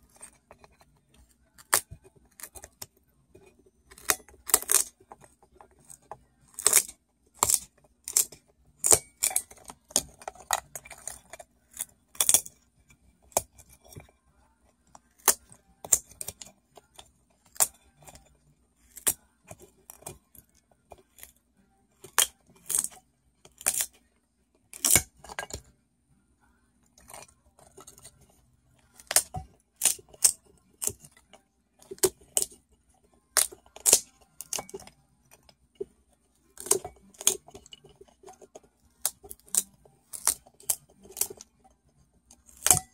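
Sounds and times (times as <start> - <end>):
hard objects clicking together: 27.0 - 35.9.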